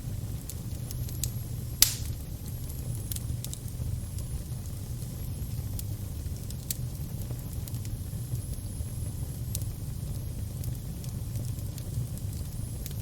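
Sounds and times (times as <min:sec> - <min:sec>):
fire crackling: 0:00.0 - 0:13.0
sharp snaps and pops: 0:00.4 - 0:04.3.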